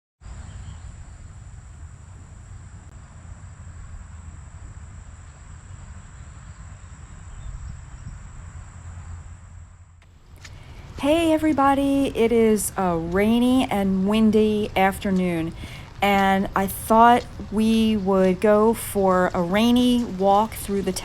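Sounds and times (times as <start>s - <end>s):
wind buffeting microphone: 5.8s - 21.0s
rain hissing: 10.1s - 21.0s.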